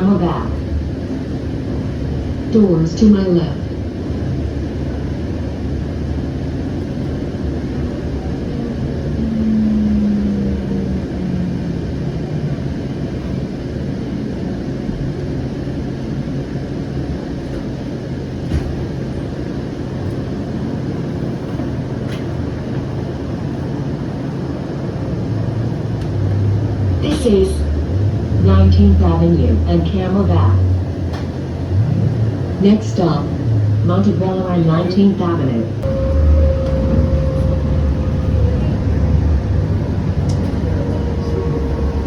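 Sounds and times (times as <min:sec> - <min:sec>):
train rumble: 0:00.0 - 0:42.0
falling braking whine: 0:07.3 - 0:13.8, 0:35.7 - 0:42.0.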